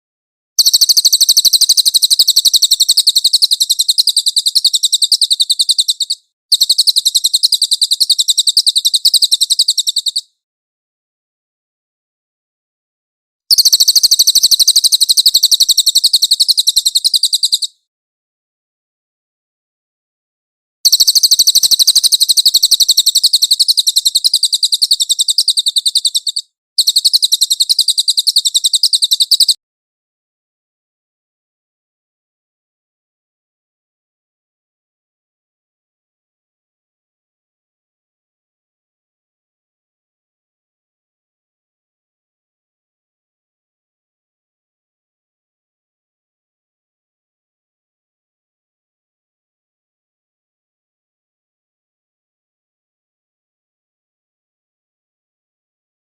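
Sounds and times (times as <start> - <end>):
songbird trilling: 0.6 - 10.3, 13.5 - 17.7, 20.9 - 29.6.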